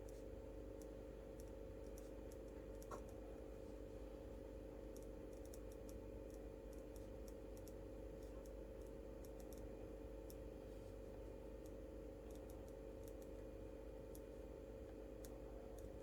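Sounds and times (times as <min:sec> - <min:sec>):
light clicks from desk work: 0:04.9 - 0:09.7, 0:11.6 - 0:13.4.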